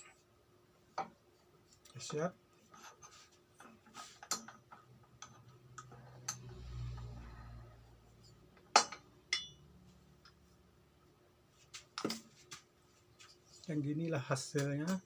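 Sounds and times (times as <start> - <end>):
metal tools ticking and clicking: 4.2 - 7.0, 8.8 - 9.6.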